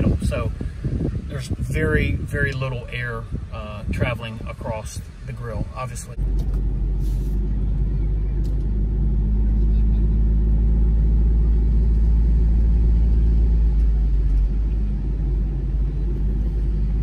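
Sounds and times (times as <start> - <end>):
car engine idling: 2.8 - 17.0.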